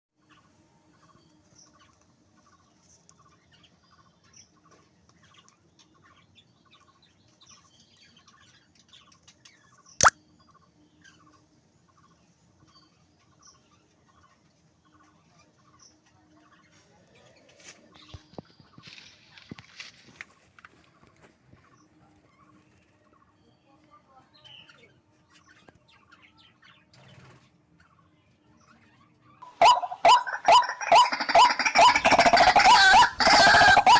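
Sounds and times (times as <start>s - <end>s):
birds chirping: 0.2s - 33.9s
loud harsh bird calls: 29.4s - 33.9s.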